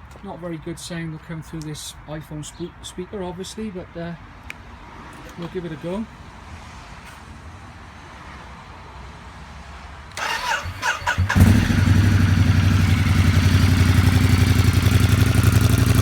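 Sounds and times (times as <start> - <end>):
electric starter cranking: 10.1 - 13.1
motorcycle engine idling: 11.0 - 16.0.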